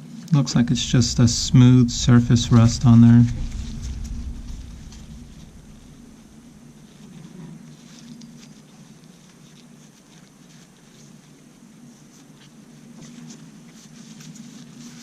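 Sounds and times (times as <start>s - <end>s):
steady low hum: 0.5s - 7.0s.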